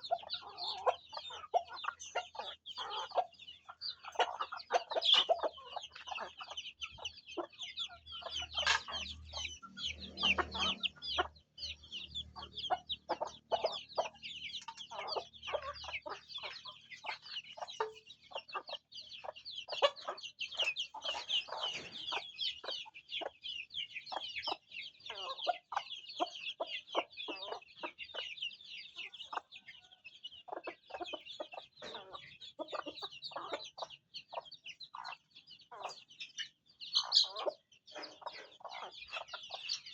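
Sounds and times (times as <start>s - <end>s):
chicks peeping: 0.0s - 39.9s
hens clucking: 0.0s - 39.9s.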